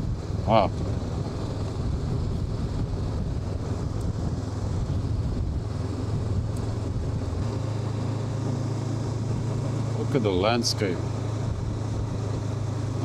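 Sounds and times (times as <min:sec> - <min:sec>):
wind noise: 0:00.0 - 0:07.8
motorcycle engine running: 0:00.0 - 0:13.0.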